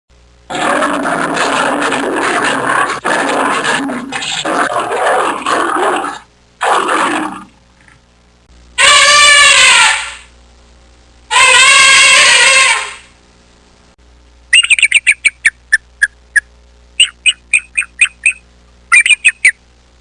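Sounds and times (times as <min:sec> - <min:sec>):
loud pitched animal call: 0:00.5 - 0:07.5, 0:08.8 - 0:10.3, 0:11.3 - 0:13.1, 0:17.0 - 0:19.6
animal growling: 0:00.5 - 0:07.6.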